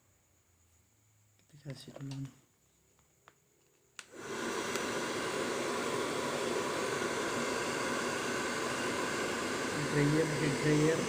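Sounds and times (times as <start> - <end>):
hair dryer switch click: 4.0 - 4.9
hair dryer blowing: 4.0 - 11.0.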